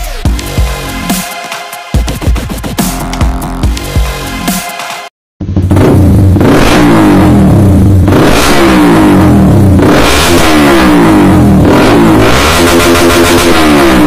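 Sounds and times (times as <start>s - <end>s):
motorcycle revving loudly: 5.4s - 14.0s.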